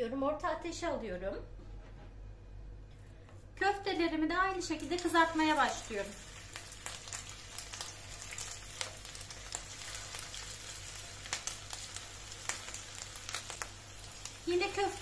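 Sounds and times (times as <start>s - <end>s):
meat sizzling in hot oil: 4.7s - 15.0s.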